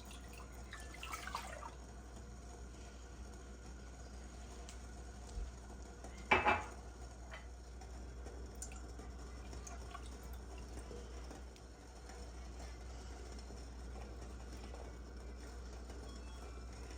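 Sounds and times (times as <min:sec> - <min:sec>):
low steady hum: 0:00.0 - 0:16.9
kitchenware clattering: 0:06.3 - 0:06.7.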